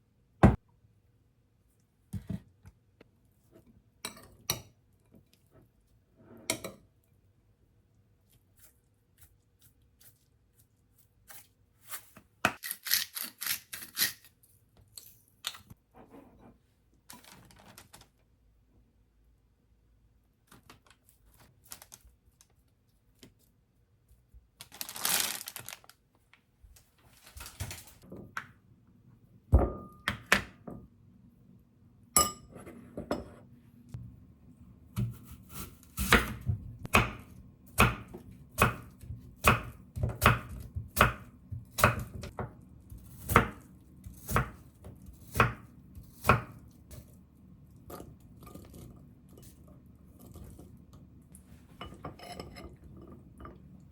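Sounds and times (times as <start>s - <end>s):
knife chopping on cutting board: 35.0s - 46.6s.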